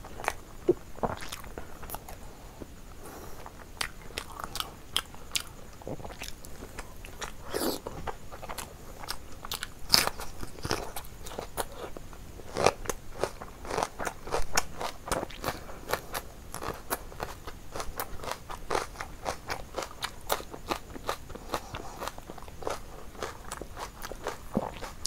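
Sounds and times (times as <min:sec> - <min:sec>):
steady chewing: 0:00.0 - 0:25.0
crunching bites of onion: 0:07.1 - 0:11.9.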